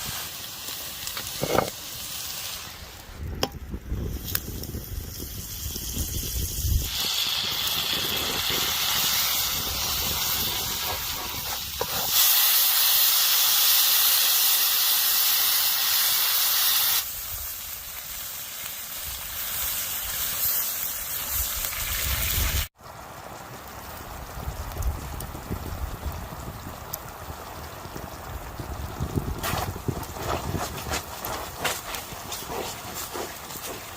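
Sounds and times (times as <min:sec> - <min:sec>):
rushing hiss: 0:00.0 - 0:03.2, 0:04.0 - 0:22.8.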